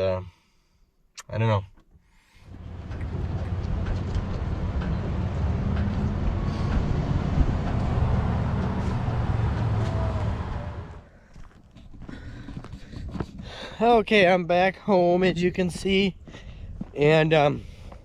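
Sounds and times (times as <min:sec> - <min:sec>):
vehicle engine and road rumble: 0:02.3 - 0:13.6.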